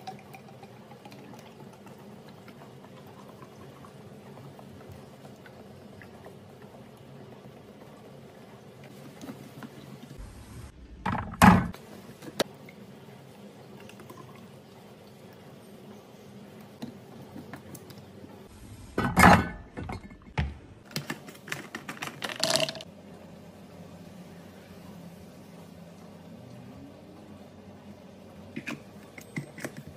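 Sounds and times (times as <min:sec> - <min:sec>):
kitchen items clattering: 0:19.0 - 0:22.9.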